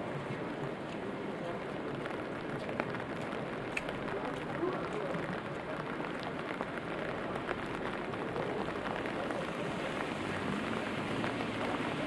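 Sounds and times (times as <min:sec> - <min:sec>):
steady rain hiss: 0:00.0 - 0:12.0
raindrops ticking: 0:00.4 - 0:12.0.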